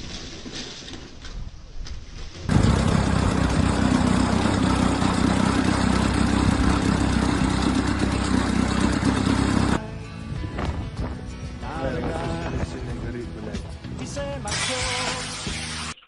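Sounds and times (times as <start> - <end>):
heavy vehicle engine running: 2.5 - 9.8.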